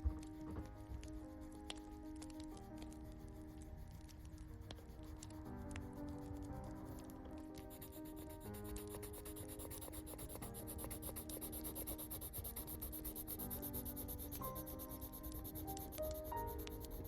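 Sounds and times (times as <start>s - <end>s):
soft lofi music: 0.0s - 17.0s
pen scratching on paper: 6.0s - 17.0s.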